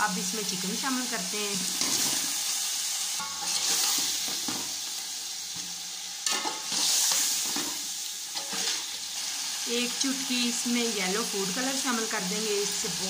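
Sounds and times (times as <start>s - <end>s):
chicken sizzling in hot oil: 0.0s - 13.0s
metal spoon scraping a pot: 3.2s - 4.2s, 6.2s - 9.0s.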